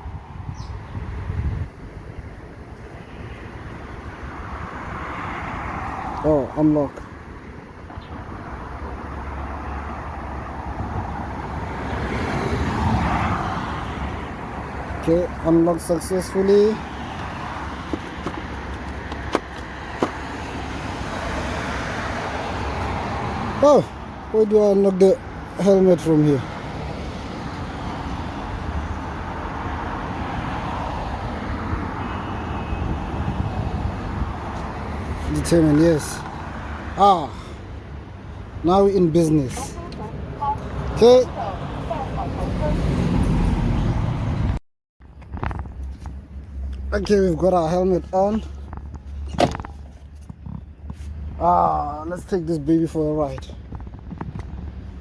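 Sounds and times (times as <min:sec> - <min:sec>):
city street traffic: 0:00.0 - 0:55.0
passing vehicles rumble: 0:00.0 - 0:55.0.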